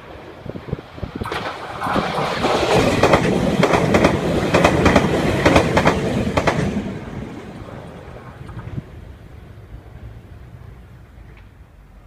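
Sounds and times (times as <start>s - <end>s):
electric train passing: 0.0s - 12.0s
wheels clacking over rail joints: 1.2s - 9.0s.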